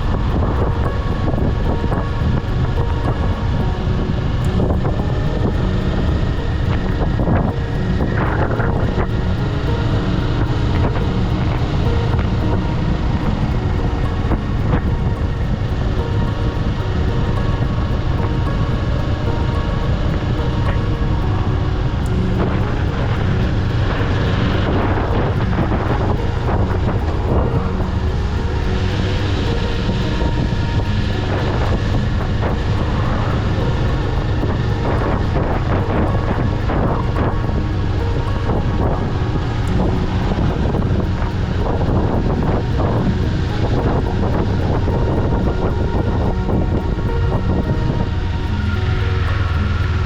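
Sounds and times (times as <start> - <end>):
wind rushing: 0.0 - 50.0.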